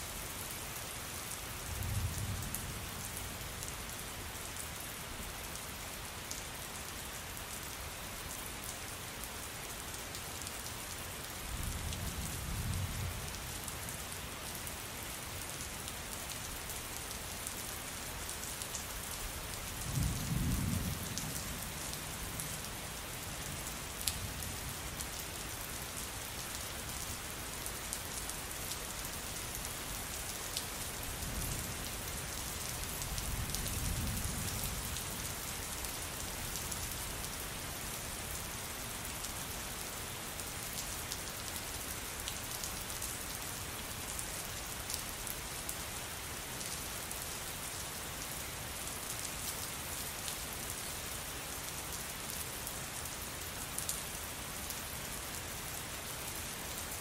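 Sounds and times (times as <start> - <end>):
rain pattering: 0.2 - 57.0.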